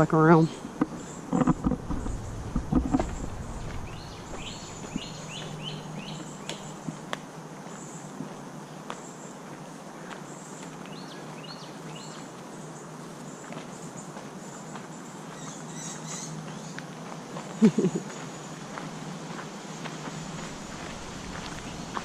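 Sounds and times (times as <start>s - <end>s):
loud low thumps: 1.5s - 5.8s
bird chirps: 1.9s - 6.9s, 15.4s - 16.8s
steady hiss: 17.6s - 22.0s.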